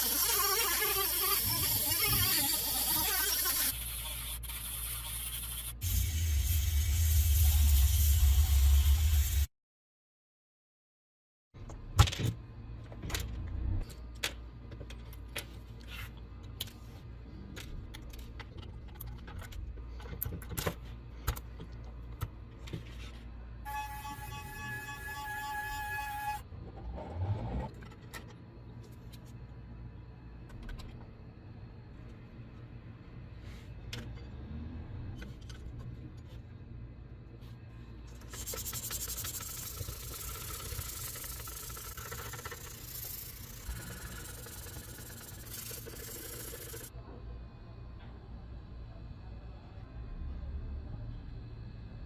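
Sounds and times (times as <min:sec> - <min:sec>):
constant low hum: 0:11.6 - 0:52.0.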